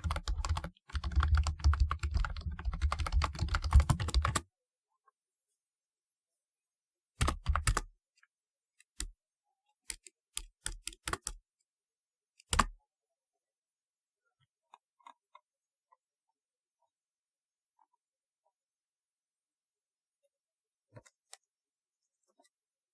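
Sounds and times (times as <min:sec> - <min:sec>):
keyboard typing: 0:00.0 - 0:04.4, 0:07.2 - 0:07.8, 0:09.9 - 0:11.4.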